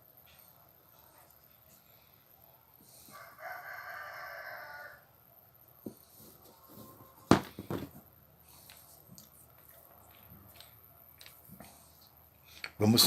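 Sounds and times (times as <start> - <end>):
rooster crowing: 3.1 - 5.1, 6.4 - 7.4.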